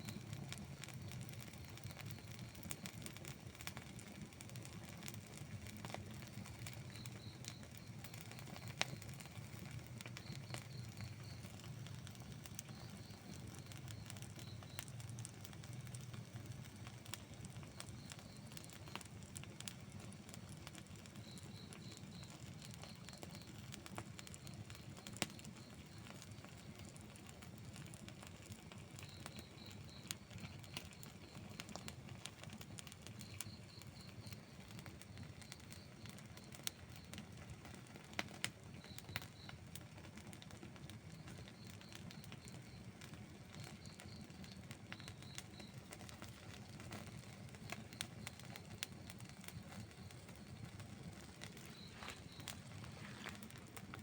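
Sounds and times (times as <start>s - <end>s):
wood fire crackling and popping: 0.0s - 54.0s
faint high chirping: 6.2s - 15.3s, 41.1s - 53.6s.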